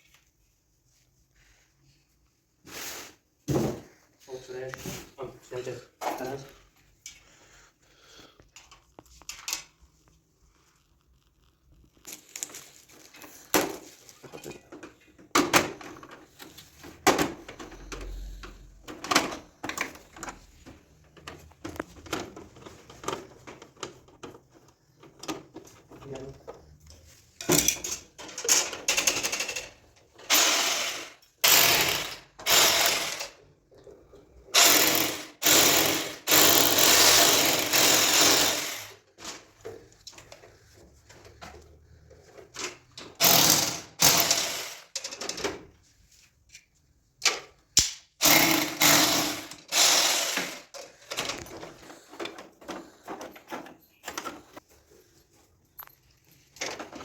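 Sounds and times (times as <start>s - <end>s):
tools and parts knocking: 27.4s - 30.4s
electric drill bursts: 30.3s - 33.4s, 34.6s - 39.0s, 43.2s - 44.9s, 48.2s - 50.7s.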